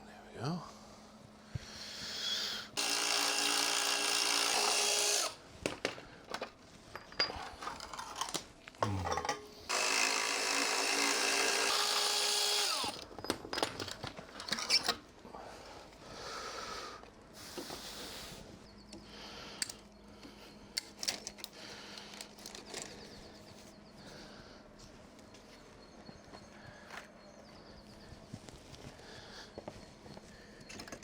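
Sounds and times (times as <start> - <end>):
power tool running: 2.7 - 5.4, 9.7 - 13.0.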